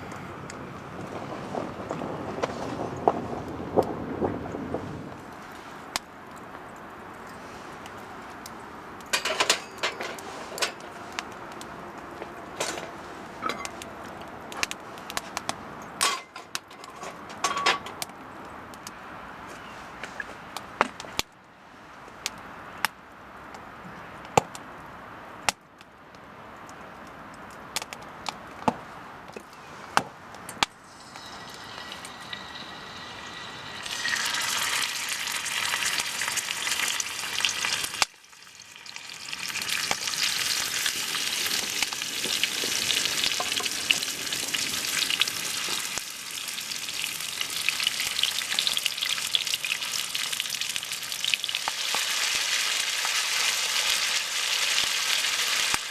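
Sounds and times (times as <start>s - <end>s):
garlic sizzling in hot oil: 30.8s - 55.9s.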